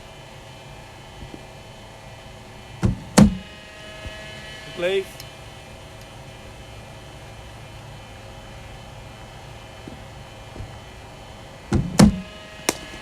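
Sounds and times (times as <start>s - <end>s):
bowling machine humming: 0.0s - 13.0s
loud sharp knock: 11.7s - 13.0s.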